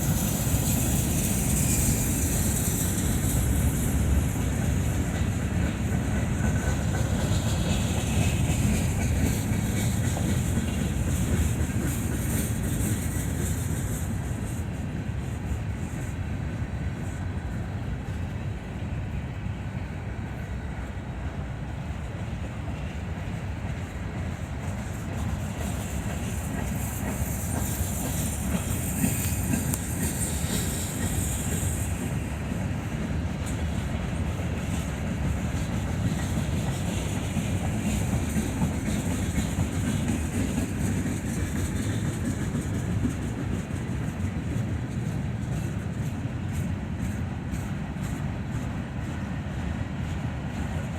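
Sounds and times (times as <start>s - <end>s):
train wheels rumbling on rails: 0.0s - 50.9s
high hiss: 24.7s - 33.8s.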